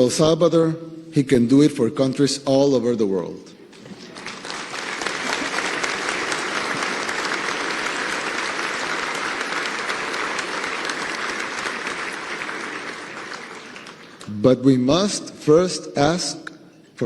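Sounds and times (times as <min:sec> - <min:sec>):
large audience applauding: 0:03.8 - 0:14.4.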